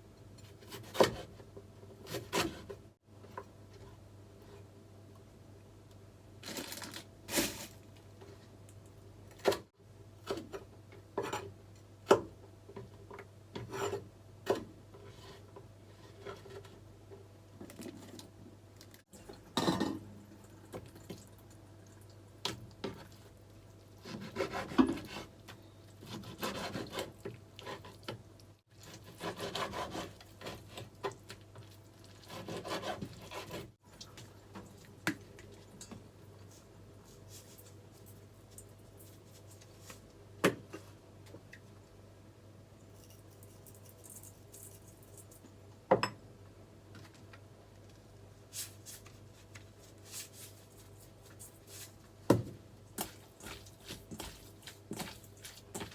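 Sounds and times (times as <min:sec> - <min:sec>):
rubbing and scraping on wood: 0:53.0 - 0:55.9.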